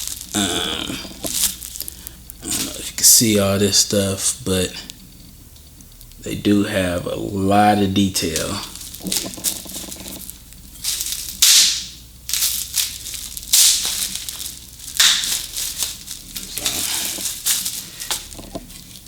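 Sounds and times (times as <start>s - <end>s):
packaging crinkling and rustling: 0.0s - 3.8s, 8.0s - 19.0s.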